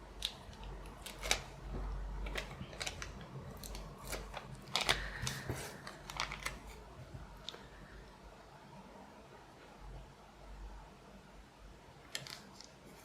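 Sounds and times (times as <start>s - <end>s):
paper and tape crinkling: 0.2s - 6.9s, 12.1s - 13.0s.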